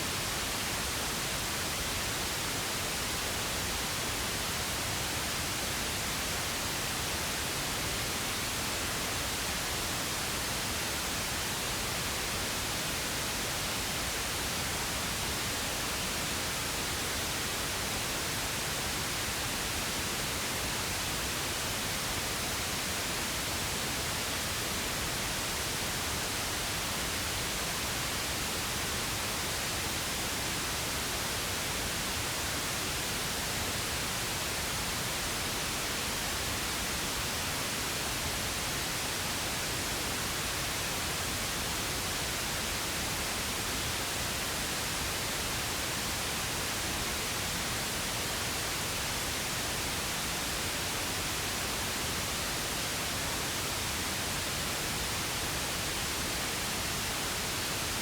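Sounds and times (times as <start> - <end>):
pink noise hiss: 0.0 - 58.0.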